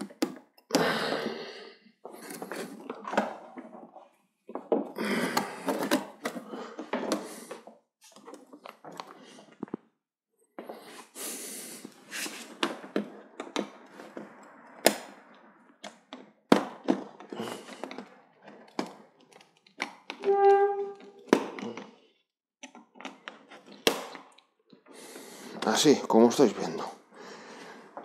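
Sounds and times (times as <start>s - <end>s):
plastic squeak: 20.1s - 21.8s.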